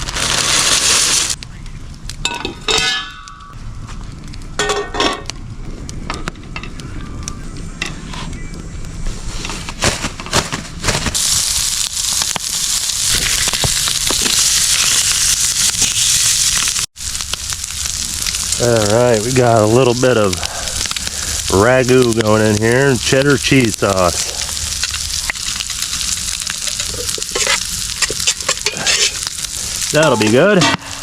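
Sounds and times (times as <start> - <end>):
food sizzling in a pan: 0.0 - 1.4, 11.2 - 31.0.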